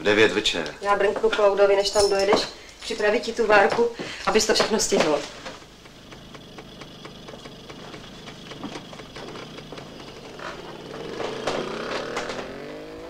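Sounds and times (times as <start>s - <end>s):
car engine running: 4.6s - 13.0s
engine revving up: 5.6s - 13.0s.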